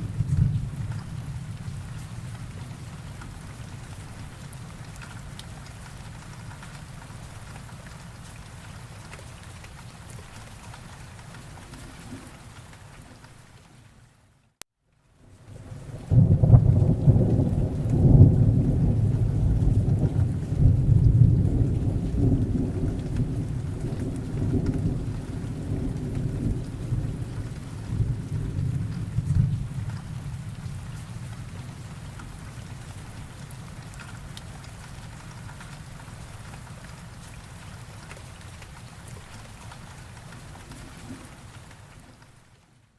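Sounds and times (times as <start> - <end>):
thunder rumbling: 0.0 - 3.7, 15.6 - 32.1
steady rain: 0.0 - 42.9.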